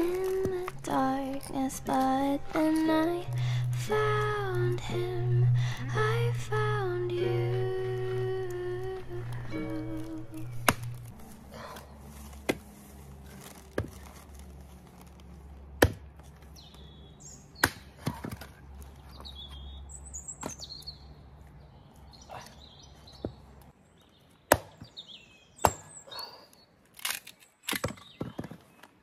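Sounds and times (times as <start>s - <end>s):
background song: 0.0s - 11.5s.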